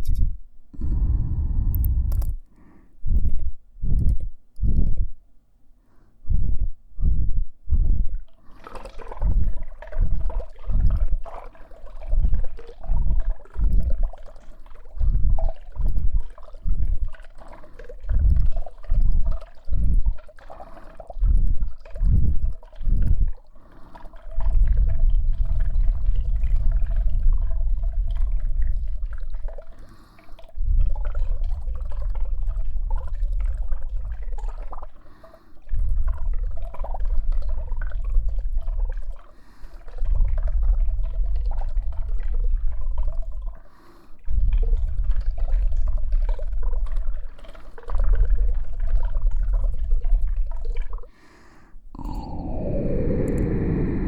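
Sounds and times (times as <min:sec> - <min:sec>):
muffled whumps on microphone: 0:00.0 - 0:02.4, 0:03.0 - 0:05.2, 0:06.2 - 0:08.1
low rumbling rub: 0:00.8 - 0:02.4, 0:52.0 - 0:54.0.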